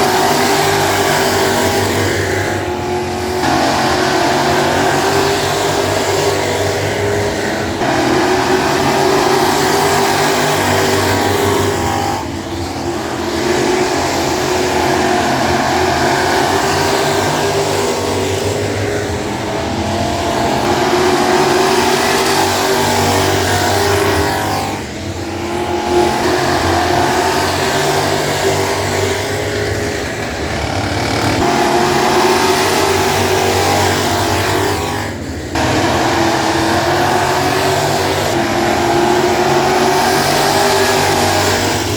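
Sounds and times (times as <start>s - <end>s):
race car engines: 0.0s - 41.9s.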